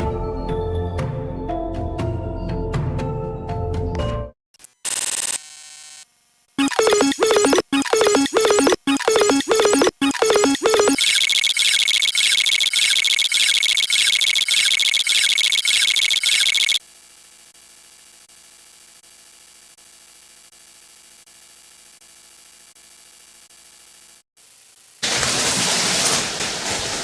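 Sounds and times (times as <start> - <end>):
shrill pulsing electronic buzz: 4.8 - 16.8
fast-ticking high buzz: 4.8 - 25.0.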